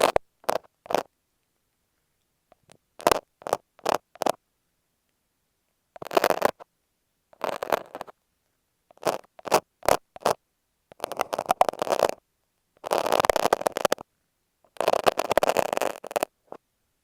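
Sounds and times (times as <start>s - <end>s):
knife and tape scraping microphone: 0.0s - 1.1s, 2.6s - 4.4s, 6.0s - 6.7s, 7.4s - 8.2s, 8.9s - 12.2s, 12.8s - 14.0s, 14.7s - 16.6s.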